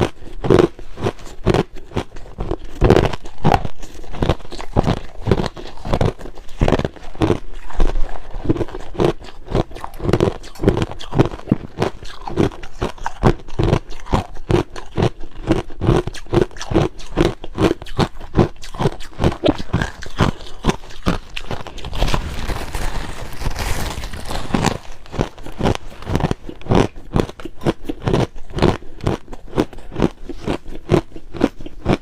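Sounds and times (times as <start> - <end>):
crushed ice being chewed: 0.0 - 32.0.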